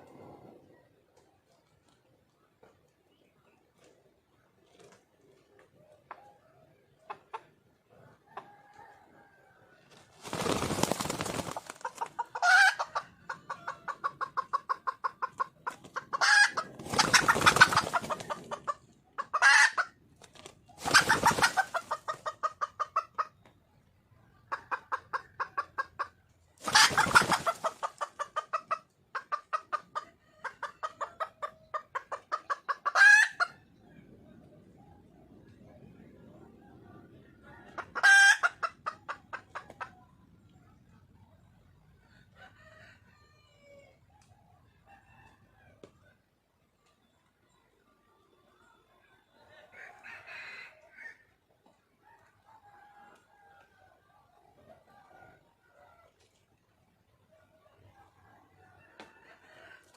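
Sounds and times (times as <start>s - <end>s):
hen clucking: 10.2s - 23.5s, 24.3s - 33.6s, 37.5s - 40.7s.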